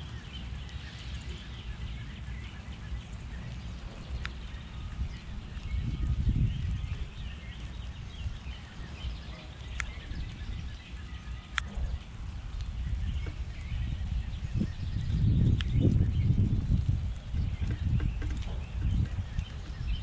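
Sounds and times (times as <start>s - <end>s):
low rumble: 0.0s - 20.0s
sharp clicks: 4.1s - 4.5s, 9.6s - 10.4s, 11.5s - 11.9s, 15.5s - 15.9s
faint small-bird chirps: 8.6s - 12.1s.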